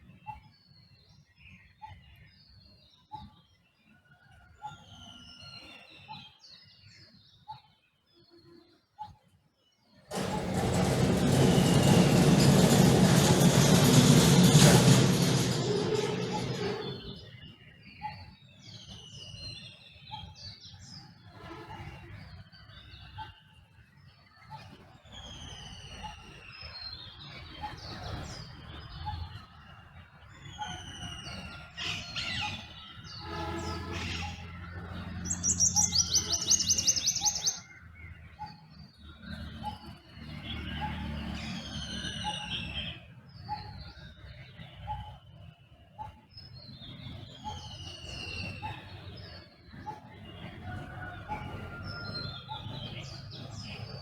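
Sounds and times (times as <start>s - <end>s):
songbirds whistling and chirping: 4.2s - 7.7s, 15.3s - 21.1s, 22.1s - 54.0s
loud noise: 10.1s - 17.2s
rapid high bird trill: 35.2s - 37.6s.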